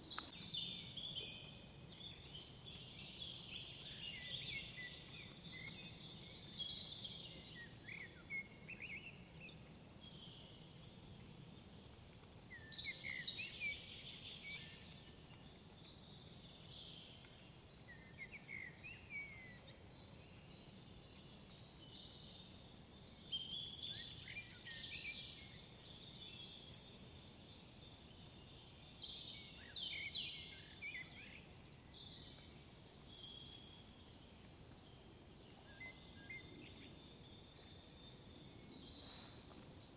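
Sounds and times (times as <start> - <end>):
bird chirps: 38.1 - 39.9.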